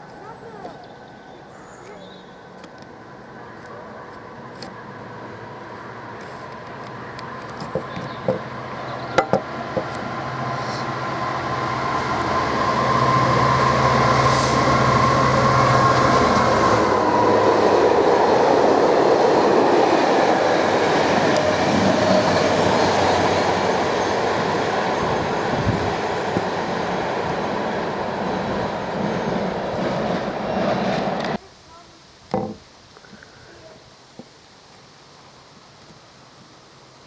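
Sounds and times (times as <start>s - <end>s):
freight train rumbling past: 6.9s - 31.4s.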